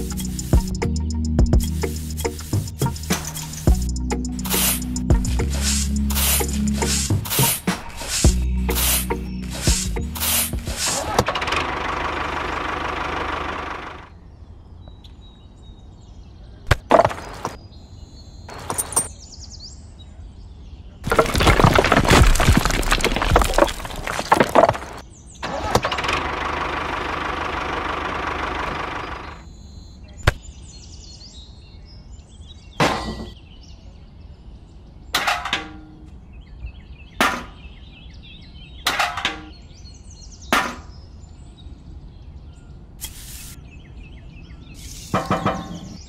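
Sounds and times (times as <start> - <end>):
clay bricks clattering: 16.7 - 17.6, 18.5 - 19.1, 21.0 - 25.0.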